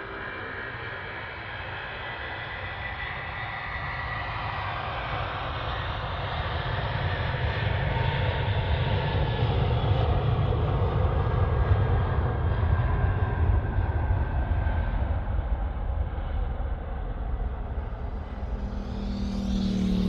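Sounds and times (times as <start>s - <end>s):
airliner engines approaching: 11.1s - 20.0s.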